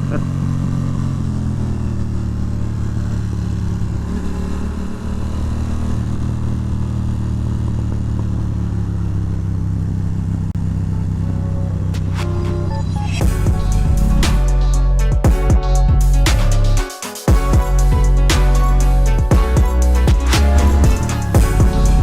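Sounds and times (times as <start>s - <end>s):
motorcycle engine running: 0.0s - 22.0s
music: 10.9s - 22.0s.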